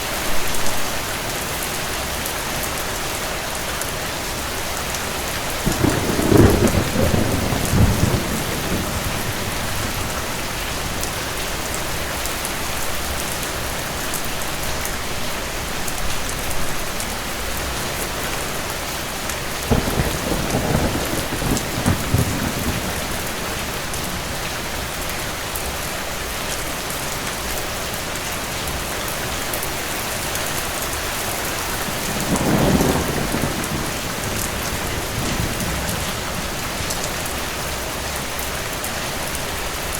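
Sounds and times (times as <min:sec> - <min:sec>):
steady rain falling: 0:00.0 - 0:39.9
distant thunder rumbling: 0:05.6 - 0:12.0, 0:19.7 - 0:25.0, 0:31.4 - 0:38.0.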